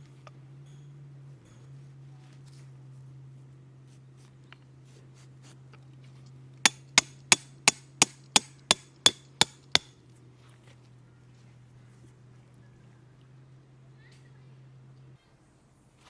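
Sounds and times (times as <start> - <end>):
faint low hum: 0.0 - 16.0
sharp knocks: 6.7 - 9.9.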